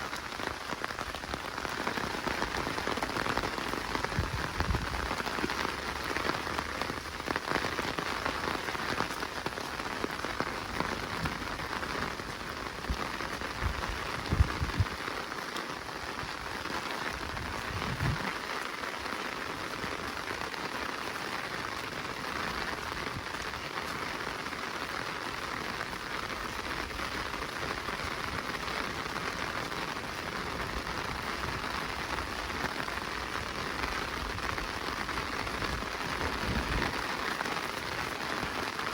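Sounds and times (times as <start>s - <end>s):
rain pattering in forest: 0.0s - 38.9s
low thuds: 17.4s - 18.3s.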